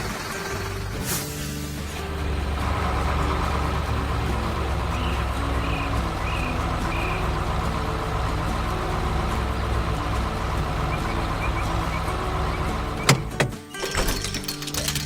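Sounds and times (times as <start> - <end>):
vehicle engine rumbling: 0.0 - 13.6.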